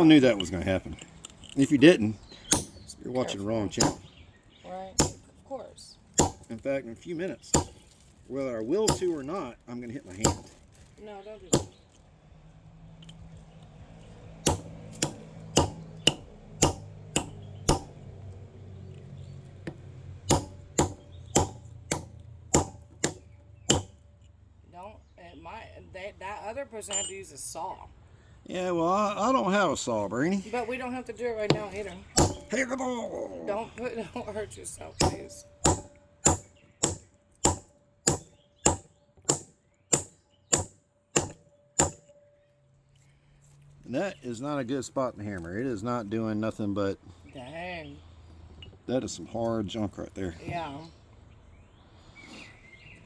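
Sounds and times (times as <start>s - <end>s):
hammer striking stone: 2.5s - 2.8s, 3.8s - 4.1s, 5.0s - 5.3s, 6.2s - 6.5s, 7.5s - 7.8s, 8.9s - 9.1s, 10.2s - 10.5s, 11.5s - 11.8s, 14.4s - 18.0s, 19.6s - 24.0s, 31.5s - 32.6s, 35.0s - 42.2s.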